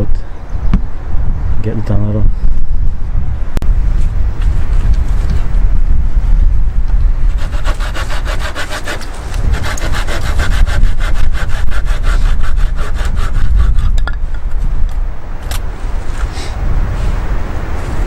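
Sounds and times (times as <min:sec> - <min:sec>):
hand saw cutting wood: 0:07.3 - 0:14.1.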